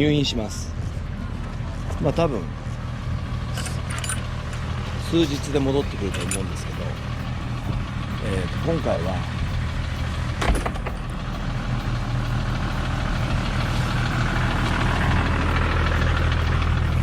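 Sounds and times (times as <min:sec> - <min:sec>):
car engine idling: 0:00.0 - 0:17.0
rushing noise: 0:04.8 - 0:17.0.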